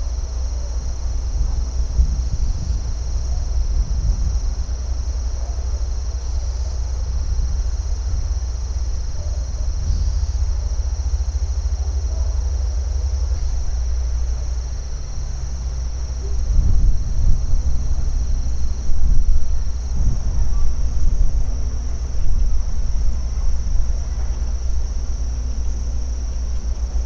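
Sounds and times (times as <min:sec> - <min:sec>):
insects buzzing: 0:00.0 - 0:27.0
low rumble: 0:06.0 - 0:27.0.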